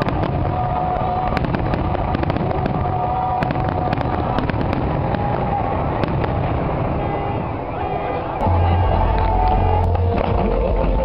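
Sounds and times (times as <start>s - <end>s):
crackling fireworks stars: 0.0s - 11.0s
fireworks bursting with bangs: 0.0s - 11.0s.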